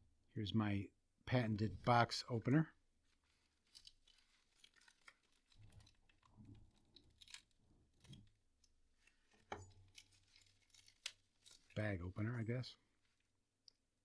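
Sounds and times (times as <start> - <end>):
plastic bag crinkling and tearing: 3.0 - 8.4, 9.0 - 11.9
small clicks and rustles: 3.0 - 11.8.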